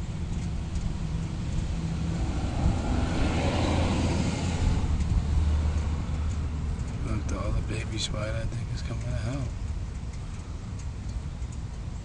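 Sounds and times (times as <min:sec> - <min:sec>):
vehicle passing: 0:00.7 - 0:07.8.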